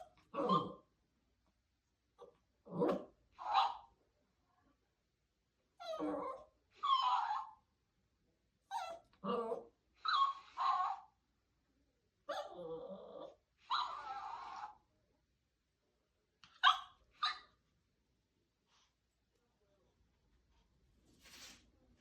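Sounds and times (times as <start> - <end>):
puppy barking and yelping: 2.2 - 3.9, 5.8 - 7.6, 8.7 - 11.2, 12.3 - 14.8, 16.5 - 17.6.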